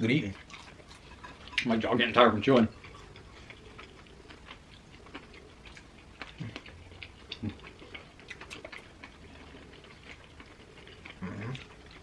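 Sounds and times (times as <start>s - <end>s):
chewing with wet mouth clicks: 0.1s - 12.0s
low throat sounds: 6.3s - 8.0s, 11.0s - 12.0s.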